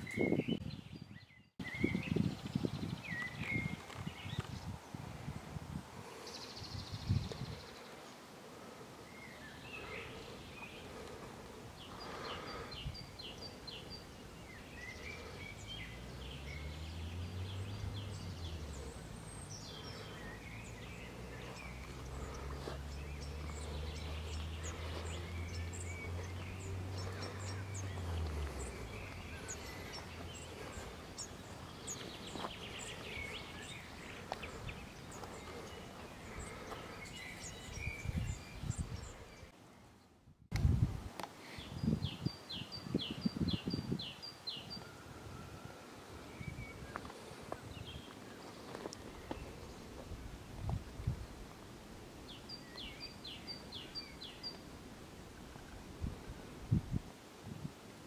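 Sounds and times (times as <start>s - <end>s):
birds chirping: 0.0s - 40.2s, 41.4s - 56.4s.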